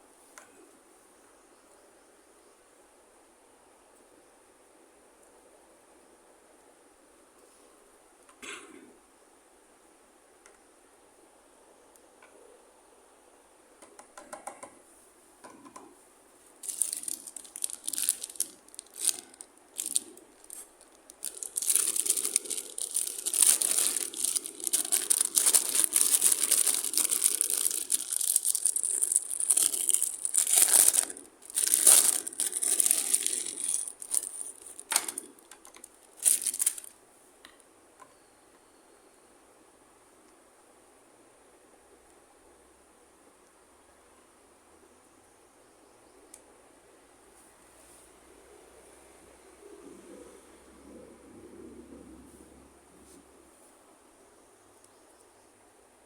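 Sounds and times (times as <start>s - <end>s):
packaging crinkling and tearing: 16.6s - 36.9s.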